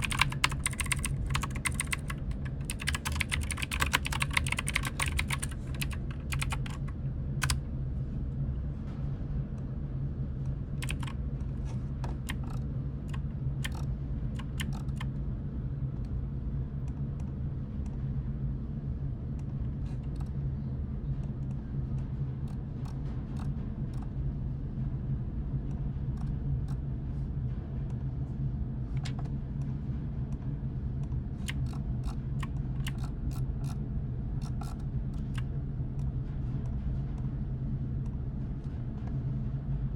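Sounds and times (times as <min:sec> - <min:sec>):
computer keyboard typing: 0:00.0 - 0:07.6, 0:10.8 - 0:11.2, 0:12.1 - 0:15.1, 0:31.5 - 0:33.8, 0:34.4 - 0:35.4
steady low hum: 0:00.0 - 0:39.9.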